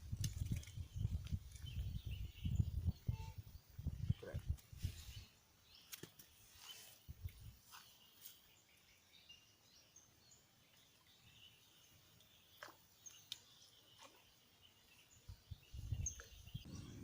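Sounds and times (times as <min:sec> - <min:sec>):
faint bird chirps: 0:00.6 - 0:17.0.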